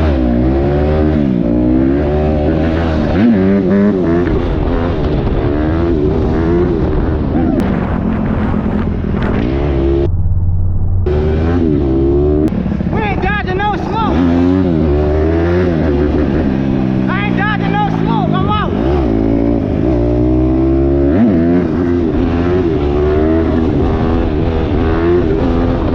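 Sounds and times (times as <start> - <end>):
dirt bike engine revving: 0.0 - 10.1, 11.1 - 25.9.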